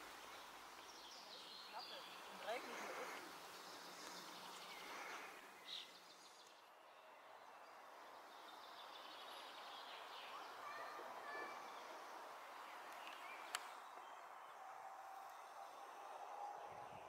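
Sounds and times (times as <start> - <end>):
steady hiss: 0.0 - 6.6.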